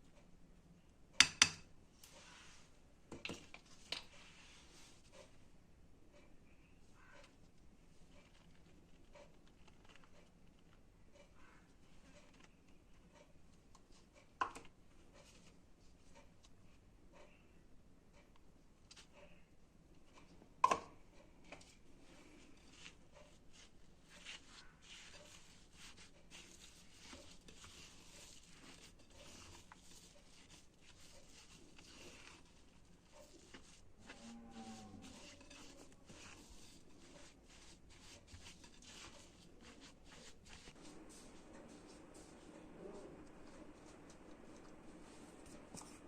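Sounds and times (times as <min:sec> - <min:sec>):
short rustling scrapes: 0:22.1 - 0:46.0.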